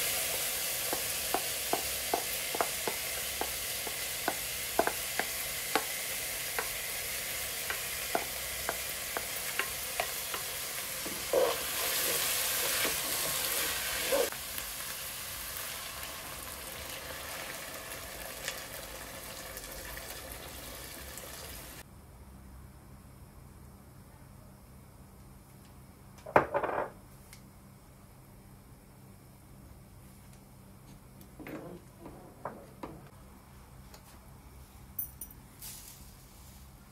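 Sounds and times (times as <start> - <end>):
food sizzling in a frying pan: 0.0 - 21.8.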